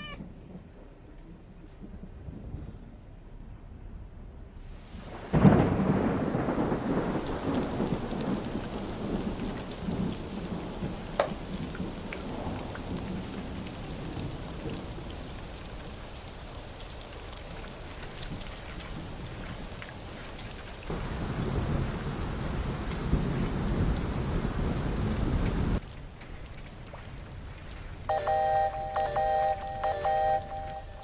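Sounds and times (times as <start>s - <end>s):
steady heavy rain: 4.5s - 31.0s
rumbling thunder clap: 5.0s - 15.1s, 20.9s - 25.8s
sharp thunder crack: 20.9s - 25.8s.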